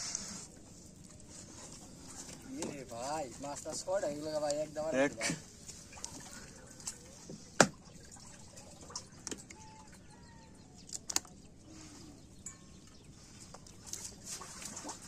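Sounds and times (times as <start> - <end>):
lapping water: 0.1 - 10.1, 12.0 - 15.0
water splashing: 2.0 - 9.9, 13.8 - 15.0
faint bird chirps: 5.9 - 14.5.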